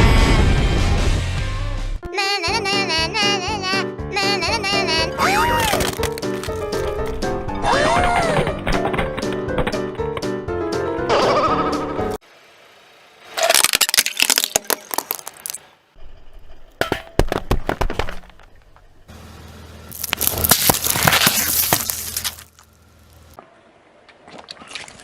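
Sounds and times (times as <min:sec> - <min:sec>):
brittle objects cracking under tyre: 0:05.2 - 0:07.4, 0:13.3 - 0:15.6, 0:19.9 - 0:23.4.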